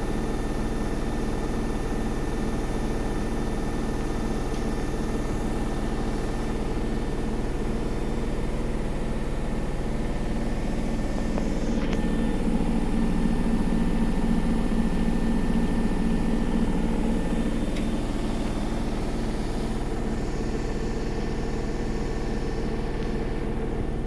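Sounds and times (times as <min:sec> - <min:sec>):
washing machine motor hum: 0:00.0 - 0:24.0.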